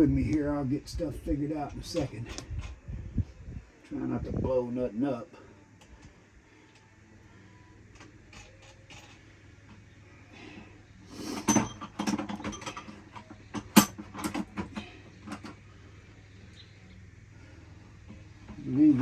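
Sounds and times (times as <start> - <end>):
metal hand tools clinking: 11.3 - 14.5.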